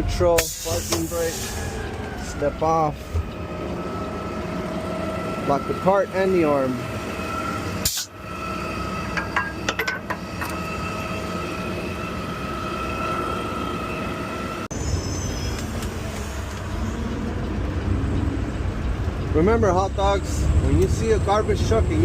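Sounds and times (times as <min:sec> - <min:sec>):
truck engine running: 0:00.0 - 0:14.7, 0:15.4 - 0:22.0
high-pitched whine: 0:03.6 - 0:19.0.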